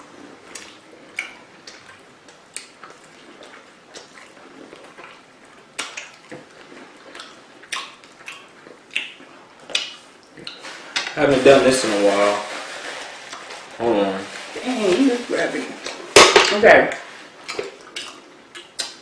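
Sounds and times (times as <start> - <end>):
food being chewed: 0.0 - 11.1, 17.2 - 19.0.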